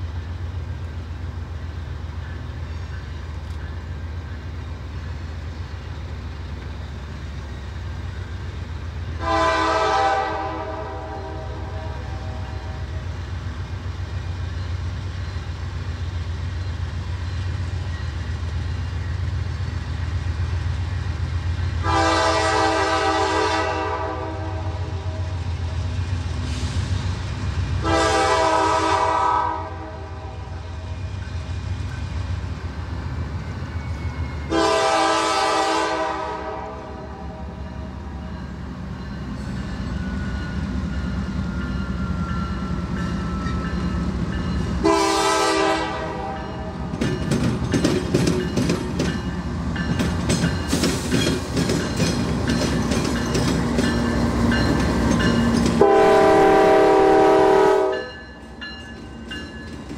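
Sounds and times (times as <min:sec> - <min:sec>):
diesel locomotive engines running: 0:00.0 - 0:59.9
train horn blasts: 0:09.2 - 0:13.0, 0:21.8 - 0:25.4, 0:27.8 - 0:30.6, 0:34.5 - 0:37.7, 0:44.8 - 0:46.9, 0:55.8 - 0:58.2
wheels clicking over rail joints: 0:46.8 - 0:55.8.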